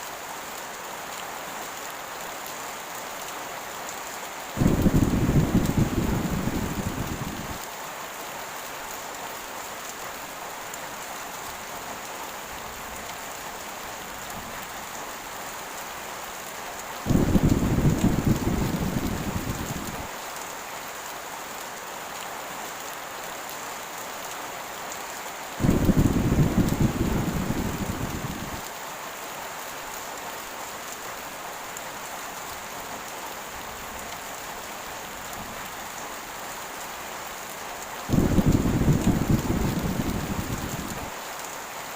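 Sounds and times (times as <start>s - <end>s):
heavy rain hissing: 3.3s - 8.8s, 9.4s - 21.0s, 24.4s - 31.5s, 37.8s - 41.9s
thunder rumbling: 4.6s - 7.6s, 17.1s - 20.1s, 25.6s - 28.6s, 38.1s - 41.1s.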